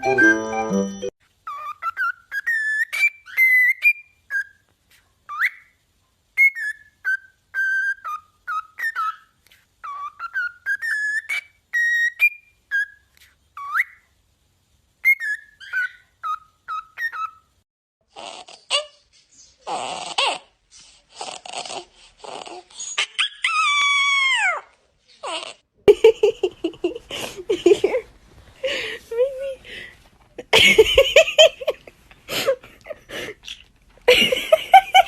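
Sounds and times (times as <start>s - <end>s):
parrot whistling: 1.5s - 4.6s, 6.4s - 14.0s, 15.0s - 17.4s.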